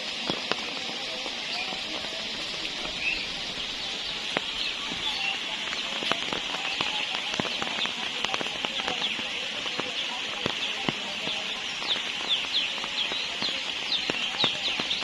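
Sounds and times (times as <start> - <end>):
steady high-pitched hiss: 0.0 - 15.0
birds chirping: 0.1 - 15.0.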